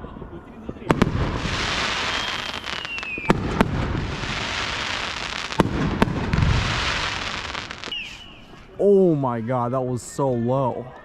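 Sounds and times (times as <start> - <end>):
firework bangs: 0.7 - 8.7
fireworks crackling: 0.7 - 8.8
falling firework whistle: 1.0 - 5.7, 6.3 - 8.6.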